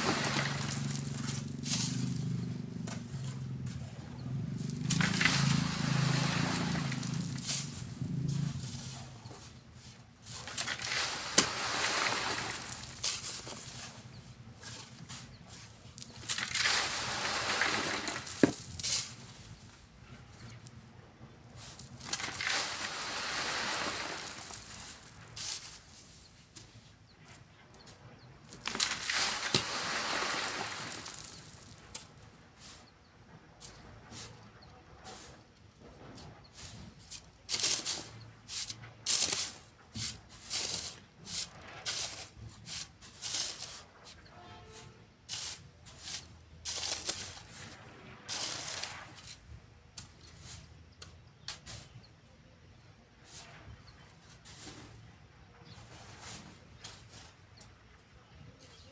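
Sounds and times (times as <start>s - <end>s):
sand pouring hiss: 0.0s - 2.5s, 4.6s - 19.7s, 21.6s - 26.8s, 28.6s - 32.9s, 36.5s - 44.3s, 45.3s - 50.8s
shovel scrape: 0.0s - 4.0s, 4.6s - 19.6s, 21.6s - 26.8s, 28.5s - 32.8s, 36.5s - 50.8s, 51.4s - 52.0s, 55.7s - 57.4s.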